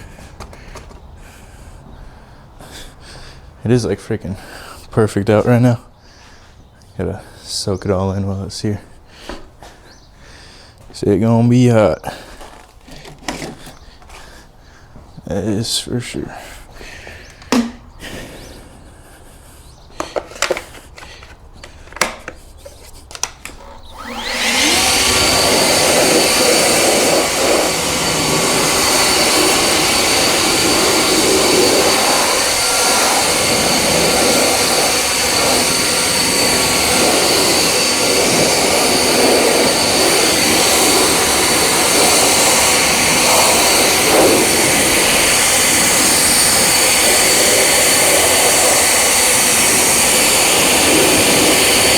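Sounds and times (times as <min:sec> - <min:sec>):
electric motor and fan running: 0:17.2 - 0:51.9.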